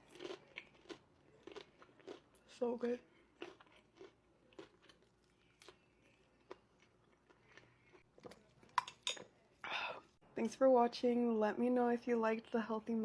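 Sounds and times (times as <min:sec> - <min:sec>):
faint chewing: 0:00.0 - 0:09.4.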